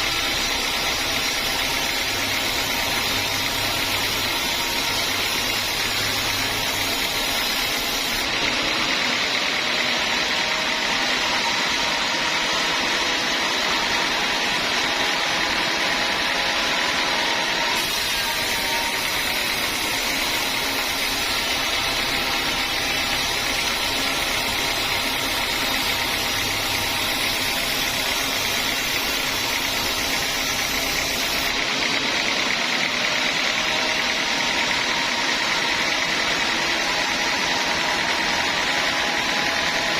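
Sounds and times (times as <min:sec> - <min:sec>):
sawmill saw running: 0:00.0 - 0:39.9.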